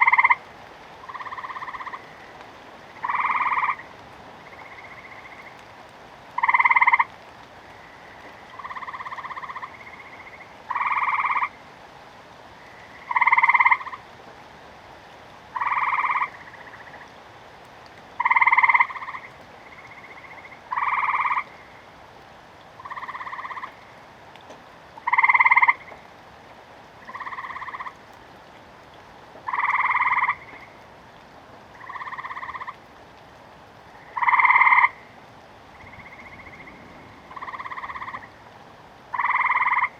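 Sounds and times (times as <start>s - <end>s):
frogs croaking: 0.0s - 5.7s, 6.3s - 11.7s, 12.6s - 14.1s, 15.5s - 17.2s, 18.1s - 22.0s, 22.8s - 24.1s, 25.0s - 26.2s, 27.0s - 28.1s, 29.4s - 30.8s, 31.7s - 32.9s, 33.8s - 39.9s.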